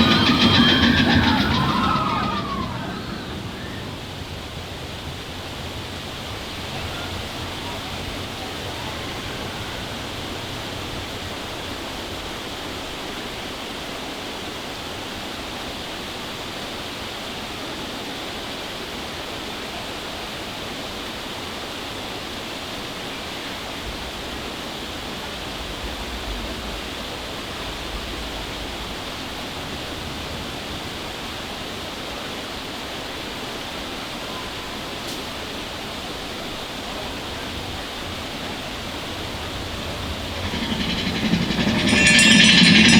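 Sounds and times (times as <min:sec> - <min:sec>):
low rumble: 0:00.0 - 0:11.8, 0:37.6 - 0:42.9.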